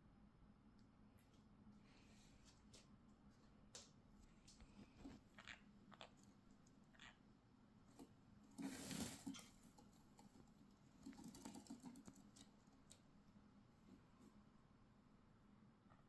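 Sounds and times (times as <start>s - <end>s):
birds scratching and rustling: 4.5s - 7.2s, 7.8s - 13.2s.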